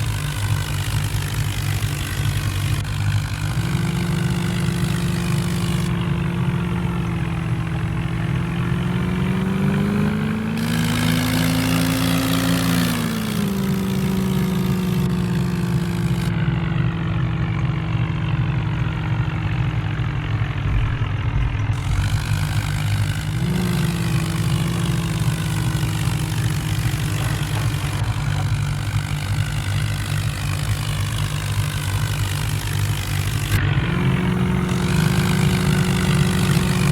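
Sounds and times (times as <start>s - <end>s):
vehicle engine idling: 0.0s - 36.9s.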